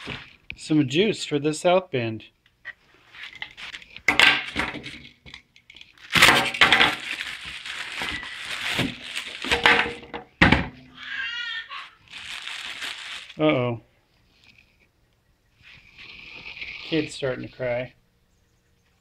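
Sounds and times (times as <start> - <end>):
packaging rustling and scraping: 0.0 - 0.4, 3.0 - 10.2, 11.9 - 13.4.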